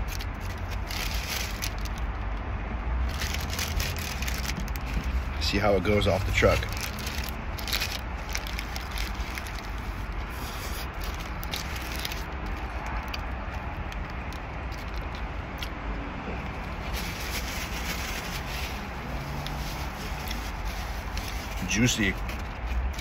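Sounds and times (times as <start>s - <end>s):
paper wrapper crinkling: 0.0s - 2.4s, 3.0s - 15.7s, 16.5s - 23.0s
chewing burger: 6.1s - 15.9s.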